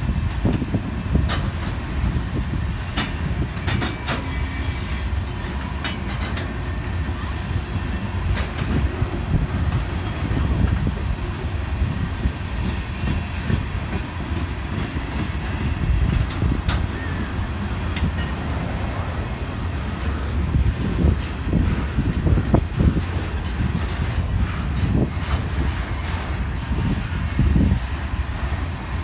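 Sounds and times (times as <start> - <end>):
train rumbling past: 0.0 - 29.0
wheels clicking over rail joints: 0.4 - 7.3, 7.9 - 20.1
high wheel squeal: 4.0 - 5.2.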